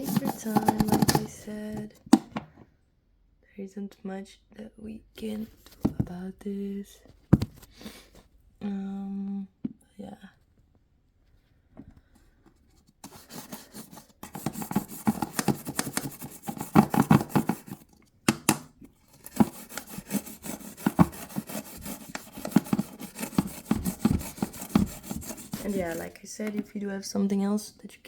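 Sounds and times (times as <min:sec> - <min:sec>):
toothbrush scrubbing plastic: 0:00.0 - 0:01.8, 0:13.0 - 0:17.9, 0:19.0 - 0:26.6.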